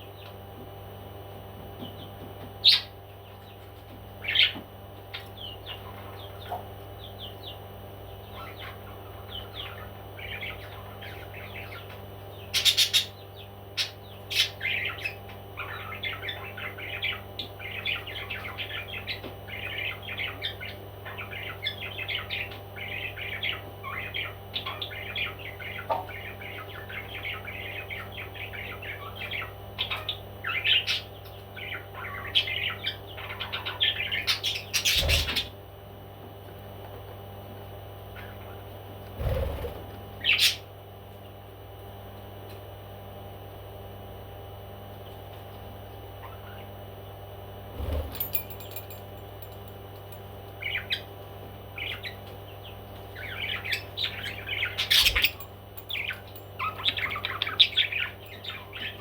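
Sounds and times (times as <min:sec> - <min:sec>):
steady low hum: 0:00.0 - 0:59.0
parrot chirping and twittering: 0:02.0 - 0:03.6, 0:04.2 - 0:07.6, 0:08.2 - 0:35.6, 0:39.2 - 0:40.7, 0:46.2 - 0:46.8, 0:50.6 - 0:59.0.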